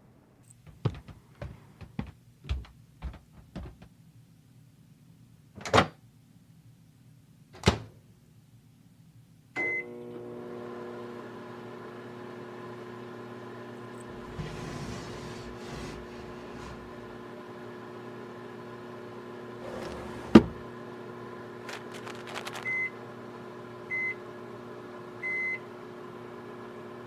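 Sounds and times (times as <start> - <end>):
microwave oven humming: 9.6 - 27.0
door shutting clunks: 14.1 - 17.0, 19.6 - 20.6.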